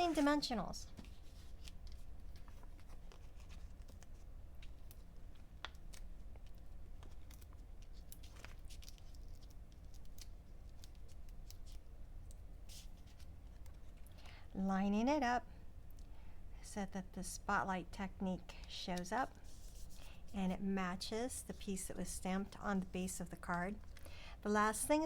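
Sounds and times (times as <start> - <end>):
paper rustling: 0.0 - 11.8.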